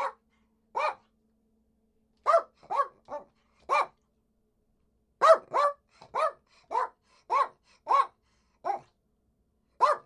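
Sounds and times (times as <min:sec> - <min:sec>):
dog barking: 0:00.0 - 0:01.1, 0:02.2 - 0:04.0, 0:05.2 - 0:09.0, 0:09.8 - 0:10.0.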